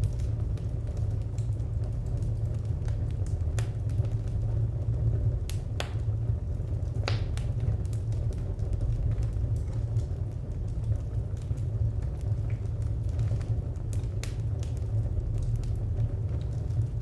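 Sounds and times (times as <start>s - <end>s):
low fire rumble: 0.0s - 17.0s
wood fire crackling and popping: 0.0s - 17.0s.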